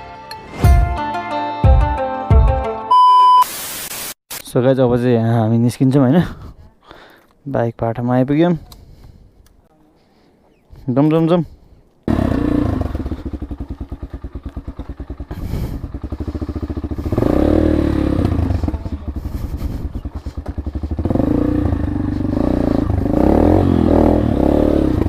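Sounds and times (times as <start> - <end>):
motorcycle engine revving: 12.1 - 25.0.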